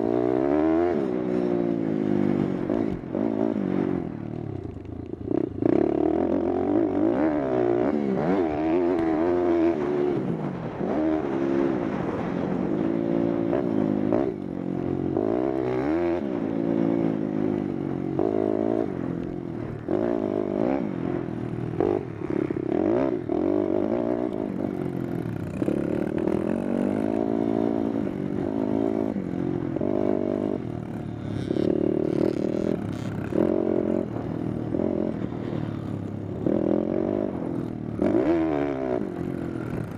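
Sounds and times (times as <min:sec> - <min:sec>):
motorbike engine revving: 0:19.9 - 0:39.9.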